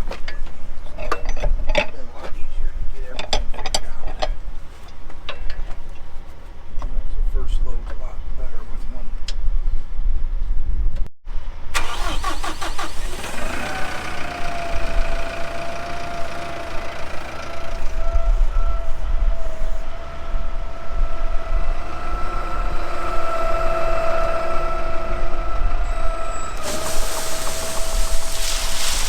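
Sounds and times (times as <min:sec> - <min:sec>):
engine cranking and running: 0:11.7 - 0:29.0.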